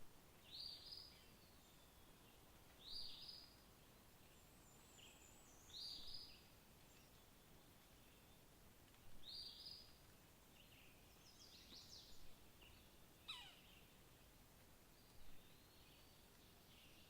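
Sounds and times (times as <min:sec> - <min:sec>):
wild birds calling: 0:11.1 - 0:14.3.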